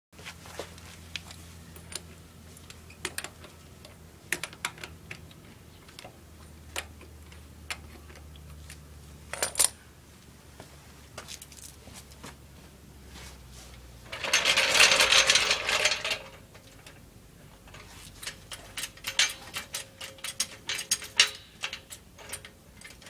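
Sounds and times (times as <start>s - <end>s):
low steady hum: 0.2s - 23.0s
metal tools clinking: 8.6s - 9.8s, 14.1s - 17.0s, 17.6s - 23.0s.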